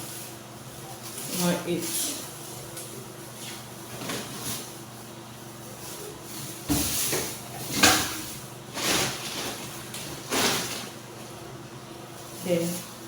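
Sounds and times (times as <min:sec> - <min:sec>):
packaging rustling: 0:08.7 - 0:11.0.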